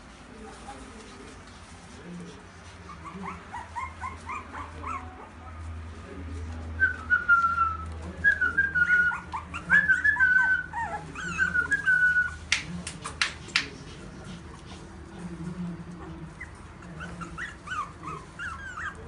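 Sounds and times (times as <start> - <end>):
puppy whining: 2.8 - 5.6, 6.8 - 13.2, 15.9 - 19.0.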